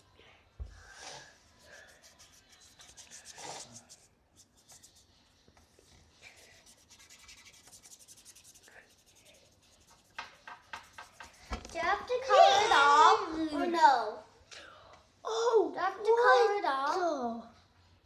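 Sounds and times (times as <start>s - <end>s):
paintbrush scratching on wood: 1.6s - 11.7s.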